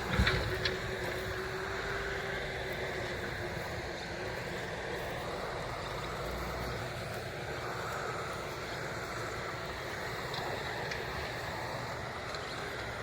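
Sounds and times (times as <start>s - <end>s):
diesel engines running: 0.0s - 13.0s
thin steady whine: 0.0s - 13.0s.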